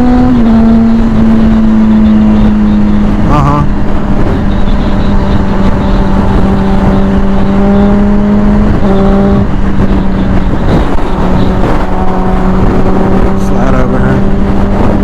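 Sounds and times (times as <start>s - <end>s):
motorcycle engine cruising: 0.0s - 15.0s
road and wind noise: 0.0s - 15.0s.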